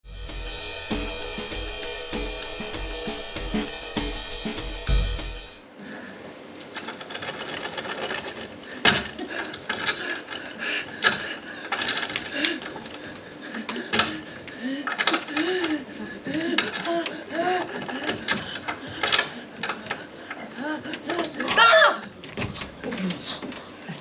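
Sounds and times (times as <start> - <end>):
music jingle with drum beat: 0.0 - 5.6.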